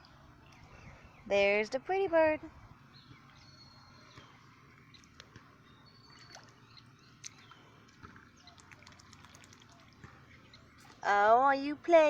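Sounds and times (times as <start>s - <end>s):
goose splashing in water: 6.0s - 11.0s.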